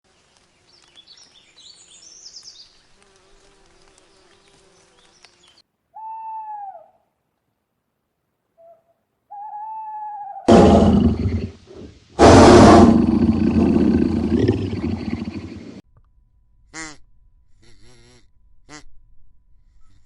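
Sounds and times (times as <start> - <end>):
drawn-out animal calls: 13.2 - 15.8.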